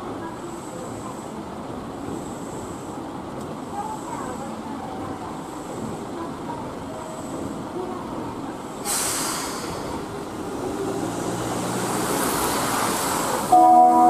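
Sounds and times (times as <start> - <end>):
air brakes hissing: 8.8 - 10.2
electric train running hum: 9.6 - 14.0.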